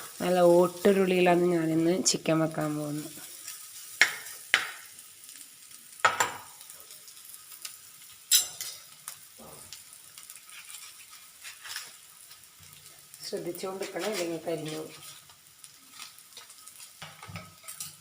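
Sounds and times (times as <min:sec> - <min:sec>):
coconut frying in oil sizzling: 0:00.0 - 0:18.0
spoon scraping across pan: 0:08.3 - 0:18.0.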